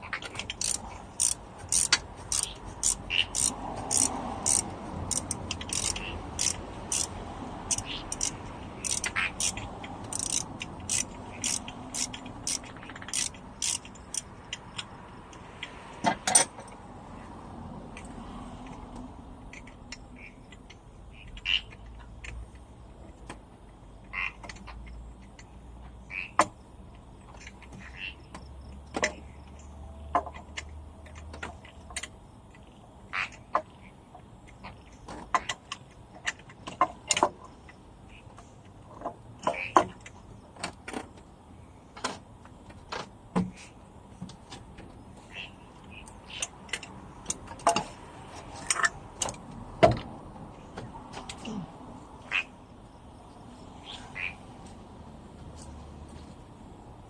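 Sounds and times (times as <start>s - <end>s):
tools and metal parts clinking: 0.1s - 16.8s, 46.3s - 50.0s.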